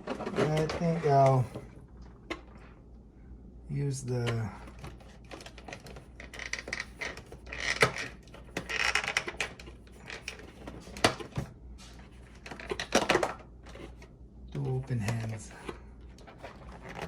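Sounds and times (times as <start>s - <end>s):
plastic pieces rustling and scraping: 0.0s - 1.6s, 4.6s - 14.1s, 14.9s - 17.0s.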